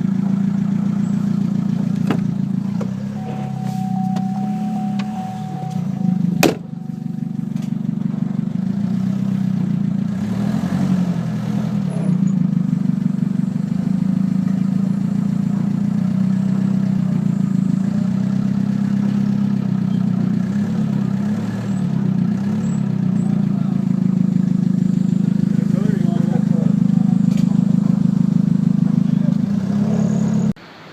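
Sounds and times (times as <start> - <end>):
pickup truck engine drone: 0.0 - 30.9
road noise: 0.0 - 30.9.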